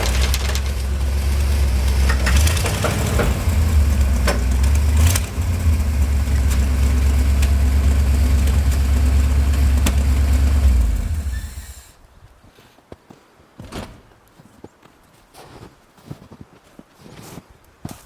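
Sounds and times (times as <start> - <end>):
sharp knocks or clanks: 0.0 - 10.5
truck engine rumbling: 0.0 - 12.0.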